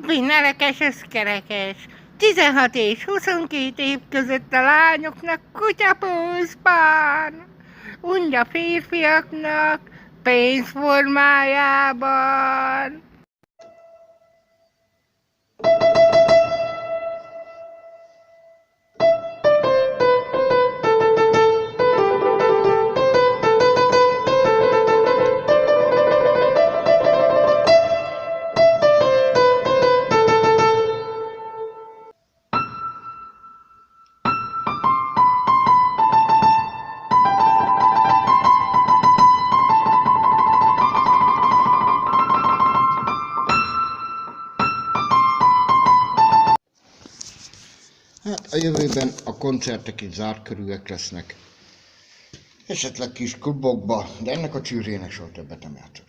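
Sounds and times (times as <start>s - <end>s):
piano playing: 13.6s - 46.6s.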